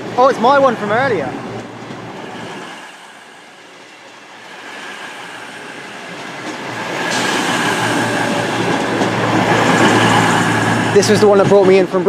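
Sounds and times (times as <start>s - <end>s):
diesel train arriving: 0.0s - 12.0s.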